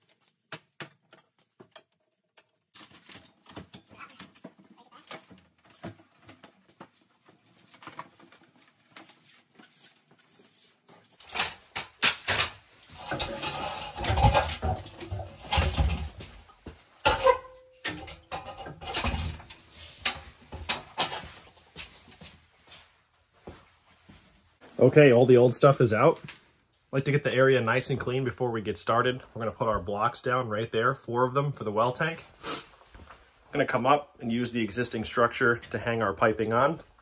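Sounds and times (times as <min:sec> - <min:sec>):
clattering plumbing pipes: 0:11.0 - 0:22.8.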